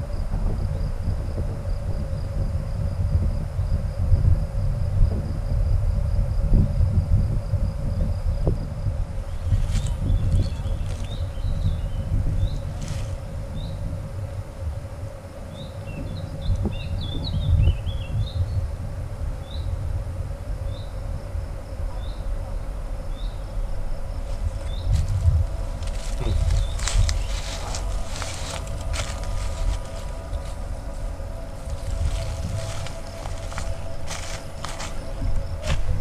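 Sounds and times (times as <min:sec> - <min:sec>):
insect buzz: 0:00.0 - 0:36.0
wind rumble on microphone: 0:00.0 - 0:36.0.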